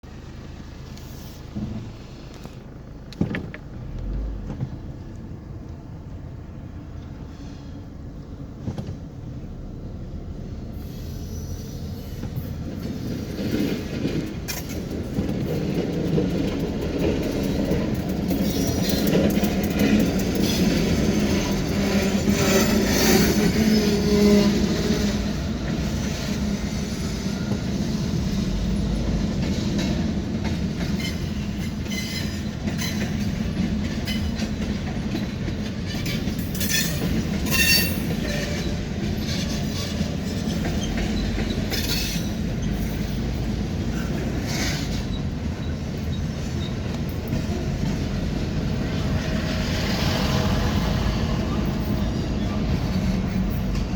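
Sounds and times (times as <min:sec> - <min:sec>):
train cars rumbling past: 0:00.0 - 0:53.9
metallic wheel squeals: 0:31.0 - 0:33.3, 0:35.9 - 0:43.3.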